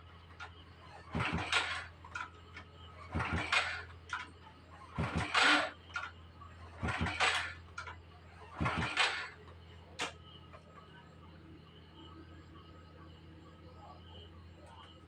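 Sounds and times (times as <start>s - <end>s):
motorbike kick-start cranking: 0.3s - 10.2s.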